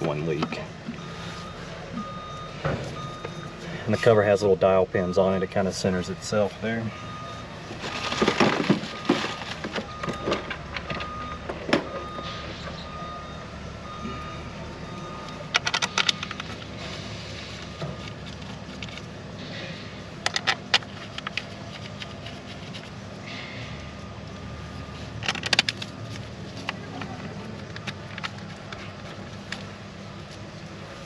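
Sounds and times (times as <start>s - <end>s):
faint repeating beep: 0.3s - 4.2s, 11.0s - 15.5s.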